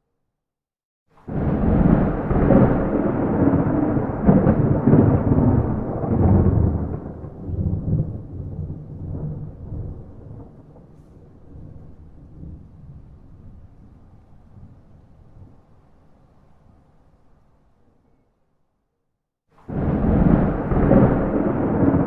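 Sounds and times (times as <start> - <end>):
thunder crack and rumble: 1.2 - 15.8, 19.6 - 22.0.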